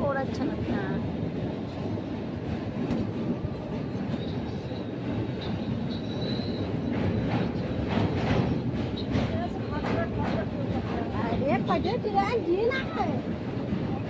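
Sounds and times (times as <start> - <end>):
train wheels rumbling on rails: 0.0 - 14.0
faint high squeal: 4.1 - 6.9.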